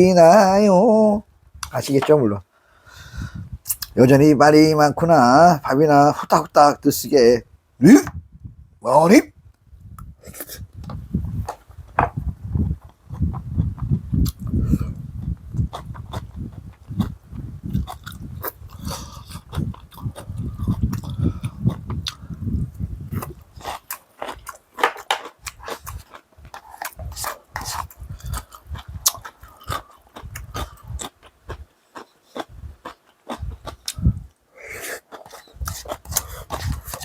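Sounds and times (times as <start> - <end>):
person chewing and crunching: 12.5 - 37.0.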